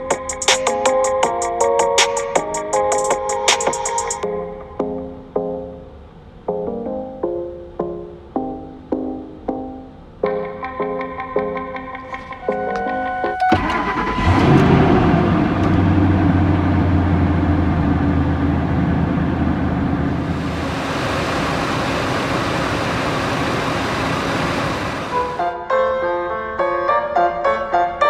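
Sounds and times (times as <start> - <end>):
car engine starting and idling: 13.0 - 25.4.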